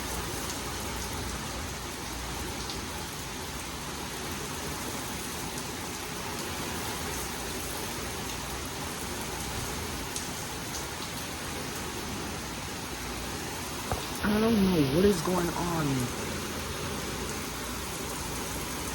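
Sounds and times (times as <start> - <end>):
heavy rain falling: 0.0 - 18.9.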